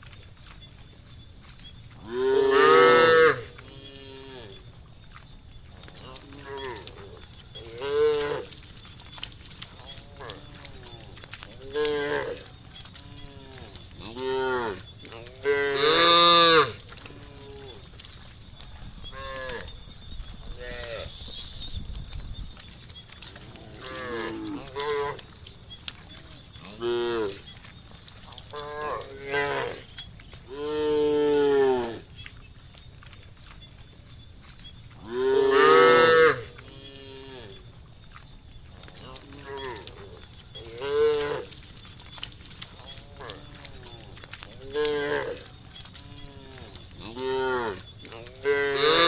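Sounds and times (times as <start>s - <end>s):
cows mooing: 2.0s - 4.6s, 6.0s - 8.6s, 9.8s - 18.0s, 23.4s - 25.4s, 26.1s - 27.5s, 28.5s - 29.9s, 30.5s - 32.1s, 35.0s - 37.6s, 39.0s - 41.6s, 42.7s - 49.0s.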